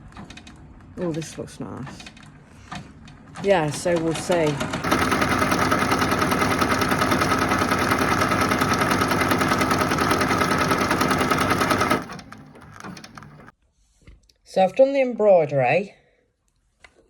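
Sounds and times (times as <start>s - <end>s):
embroidery machine stitching: 3.5s - 13.5s.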